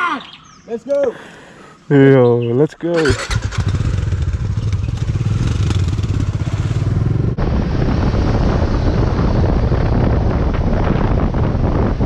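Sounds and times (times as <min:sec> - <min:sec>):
motorcycle engine running: 0:03.0 - 0:12.0
wind on microphone: 0:04.1 - 0:12.0.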